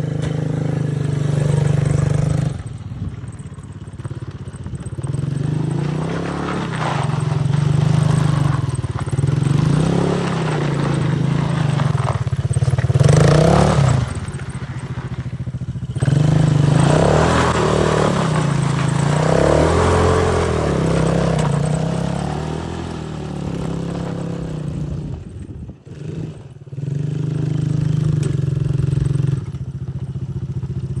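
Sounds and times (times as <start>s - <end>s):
quad bike engine revving: 0.0s - 31.0s.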